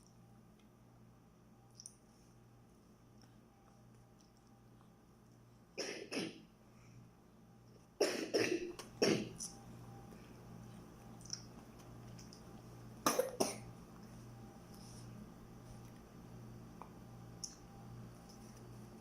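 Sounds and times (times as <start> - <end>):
person coughing: 5.8 - 6.4, 8.0 - 9.4, 13.1 - 13.7.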